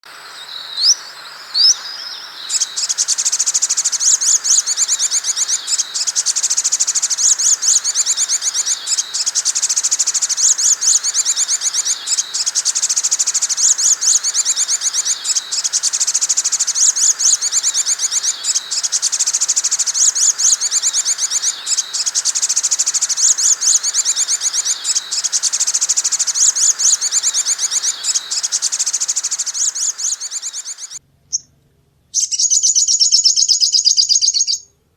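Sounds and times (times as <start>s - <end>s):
bird rising whistles: 0.4s - 31.0s, 32.2s - 34.5s
bird chattering trill: 0.4s - 31.4s, 32.2s - 34.6s.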